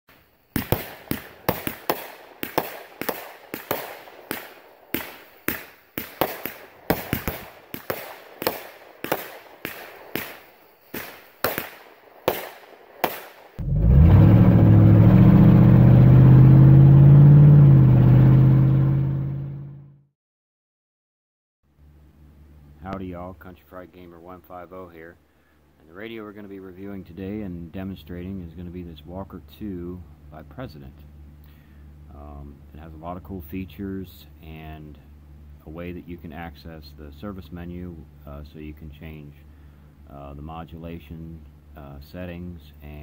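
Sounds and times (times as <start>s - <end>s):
fireworks sharp bangs: 0.1s - 13.6s
loud steady low droning tone: 13.6s - 19.8s.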